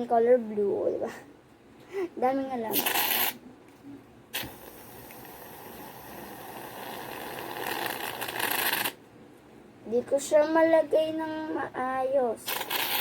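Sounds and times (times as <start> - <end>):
aerosol can spraying: 2.7 - 3.4, 12.5 - 13.0.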